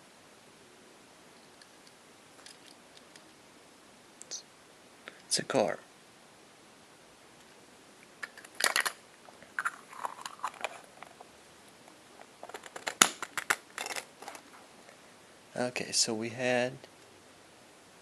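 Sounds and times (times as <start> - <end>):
packaging crinkling: 8.2 - 11.2, 12.2 - 14.5.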